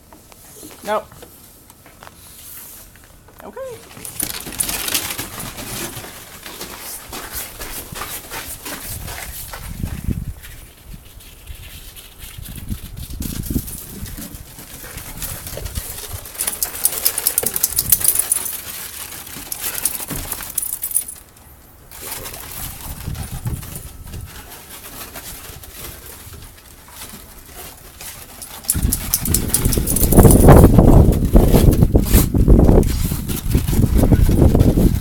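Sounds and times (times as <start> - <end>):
ice crunching and clinking: 4.0 - 7.3, 13.5 - 31.2
wind rumble on microphone: 8.9 - 16.3, 22.5 - 24.4, 28.7 - 35.0.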